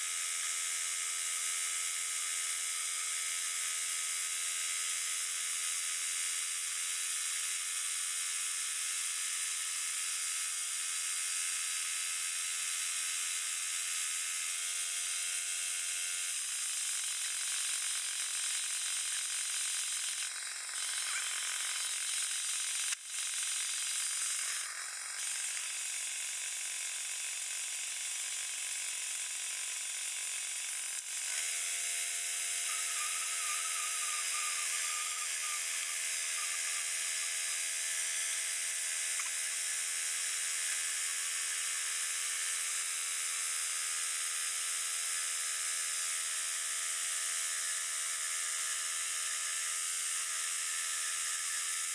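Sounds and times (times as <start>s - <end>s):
sawmill cutting log: 31.2s - 39.7s.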